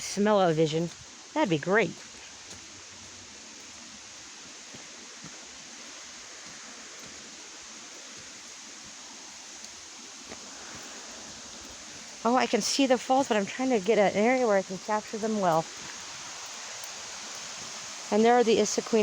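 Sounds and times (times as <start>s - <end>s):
waterfall rushing: 0.0s - 19.0s
faint ticks: 15.9s - 17.5s.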